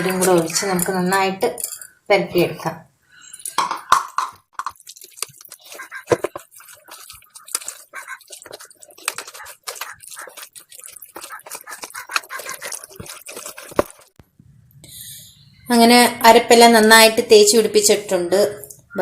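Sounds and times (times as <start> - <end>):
hands squelching marinade into chicken: 0.0 - 1.1, 4.6 - 14.2.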